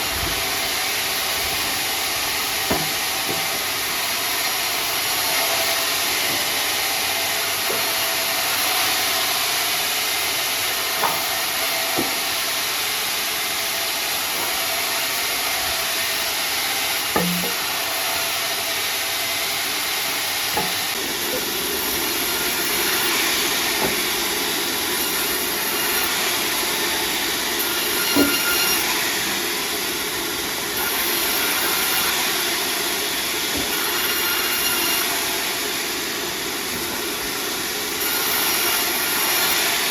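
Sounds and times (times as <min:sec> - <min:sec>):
sawmill machinery hissing: 0:00.0 - 0:39.9
sharp knocks: 0:02.7 - 0:03.5, 0:11.0 - 0:11.3, 0:17.1 - 0:17.6, 0:20.5 - 0:20.8.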